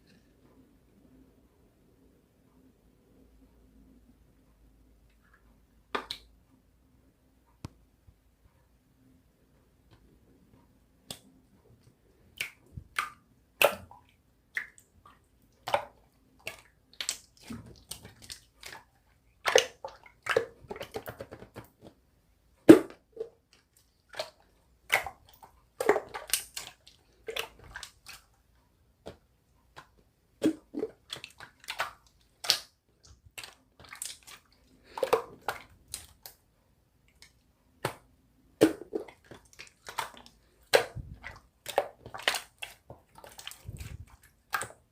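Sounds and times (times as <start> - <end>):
slime squishing by hand: 12.2 - 22.0, 22.6 - 28.4, 29.0 - 36.4, 37.1 - 44.9.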